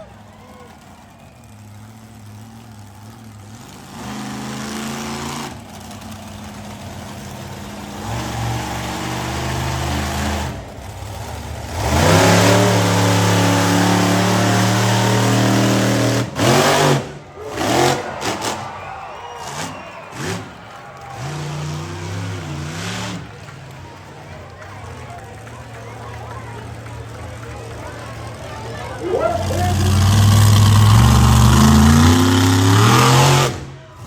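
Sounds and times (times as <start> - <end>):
monster truck engine revving: 0.0 - 34.0.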